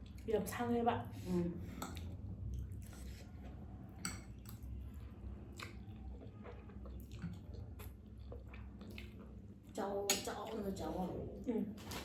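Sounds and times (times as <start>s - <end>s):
wet chewing: 5.5s - 9.4s.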